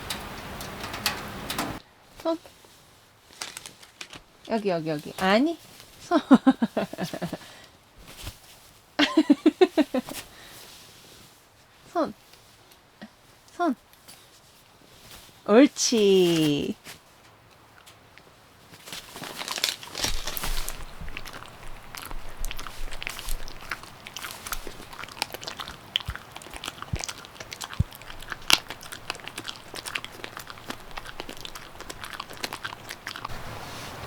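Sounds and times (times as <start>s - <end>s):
dog crunching a hard treat: 17.6s - 33.3s.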